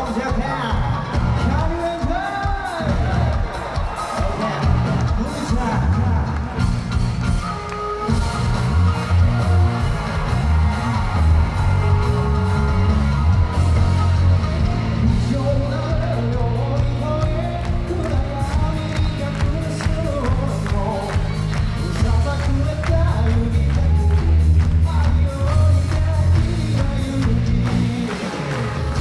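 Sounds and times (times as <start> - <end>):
rock band playing live: 0.0 - 29.0
person singing: 7.4 - 29.0.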